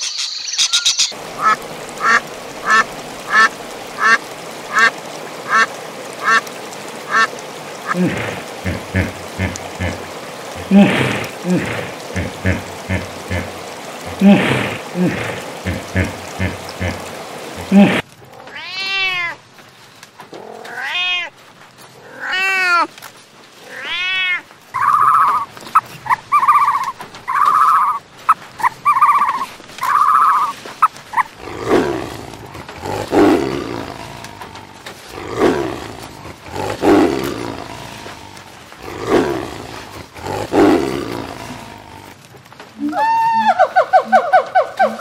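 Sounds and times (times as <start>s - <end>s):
short evenly spaced calls: 0.0s - 4.9s, 5.5s - 6.4s, 7.1s - 8.0s, 24.8s - 31.3s
cat meowing: 18.5s - 19.4s, 23.7s - 24.4s.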